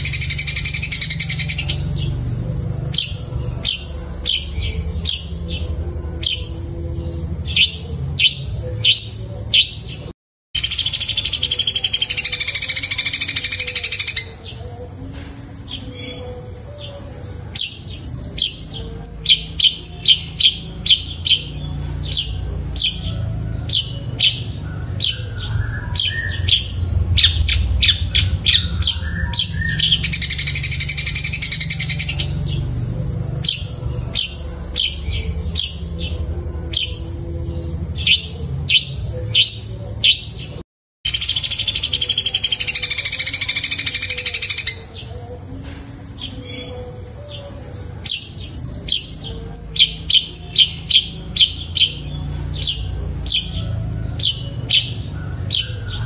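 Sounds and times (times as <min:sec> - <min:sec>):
bird chirping and chattering: 0:00.0 - 0:06.6, 0:07.4 - 0:14.6, 0:17.6 - 0:45.2.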